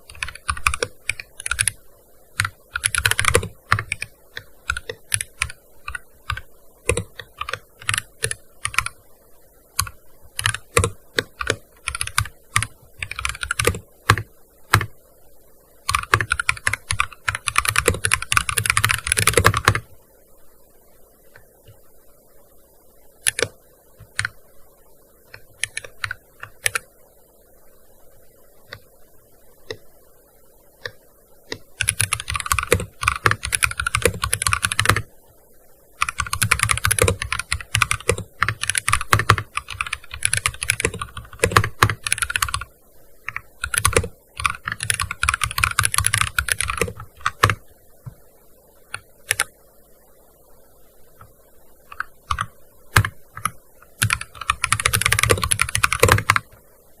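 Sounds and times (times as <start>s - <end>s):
keyboard typing: 0.0s - 1.8s, 2.4s - 9.0s, 9.8s - 15.0s, 15.8s - 19.9s, 23.2s - 24.4s, 25.3s - 26.9s, 30.8s - 35.1s, 36.0s - 42.7s, 43.3s - 48.2s, 48.9s - 49.6s, 51.2s - 56.6s.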